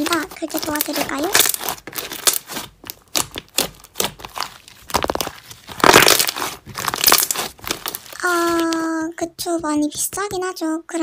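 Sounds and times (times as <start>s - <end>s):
slime crackling and popping: 0.0s - 8.8s
slime squish: 0.0s - 8.9s.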